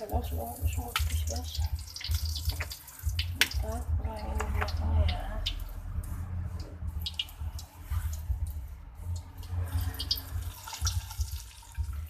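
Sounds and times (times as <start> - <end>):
oil trickling and dripping: 0.0 - 12.0.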